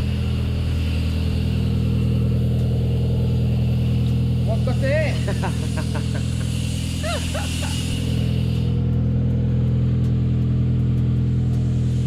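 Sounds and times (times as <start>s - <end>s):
hiss: 0.0s - 9.6s, 10.4s - 12.0s
car engine idling: 0.0s - 12.0s.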